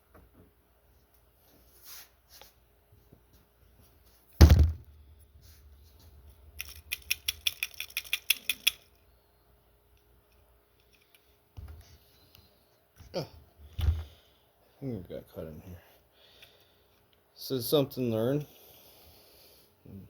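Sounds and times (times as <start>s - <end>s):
loud knock: 4.4s - 4.8s.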